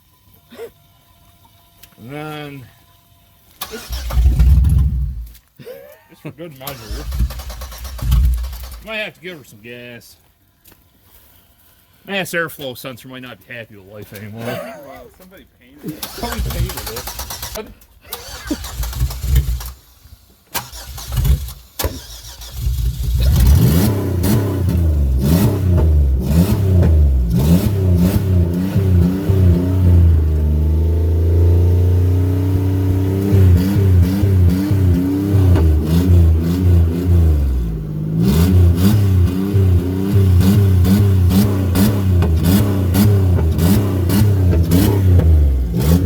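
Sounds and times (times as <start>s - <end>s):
car engine stumbling and revving: 3.5s - 5.4s, 6.6s - 8.9s, 16.0s - 17.6s, 18.2s - 46.0s.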